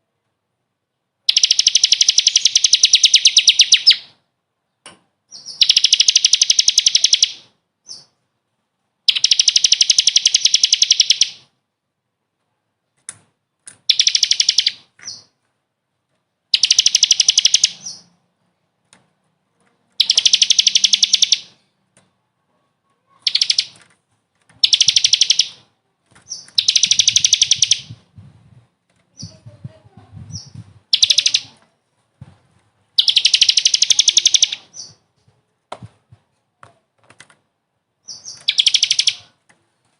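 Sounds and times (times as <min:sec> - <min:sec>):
songbird rattling trill: 0:01.2 - 0:04.2, 0:05.3 - 0:08.2, 0:09.1 - 0:11.5, 0:13.8 - 0:15.4, 0:16.5 - 0:18.1, 0:19.9 - 0:21.8, 0:23.2 - 0:23.8, 0:24.6 - 0:28.2, 0:29.1 - 0:31.6, 0:32.9 - 0:35.1, 0:38.0 - 0:39.4.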